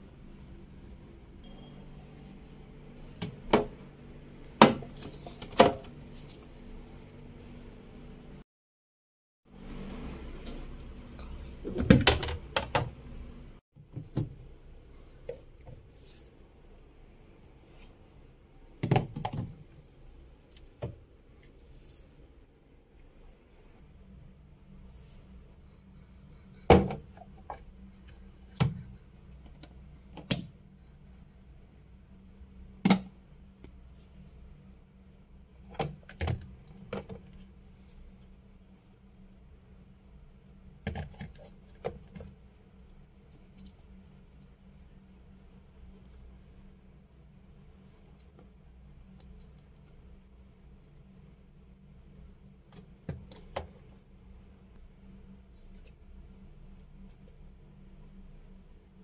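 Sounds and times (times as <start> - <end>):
low steady hum: 0.0 - 8.4, 9.5 - 59.0.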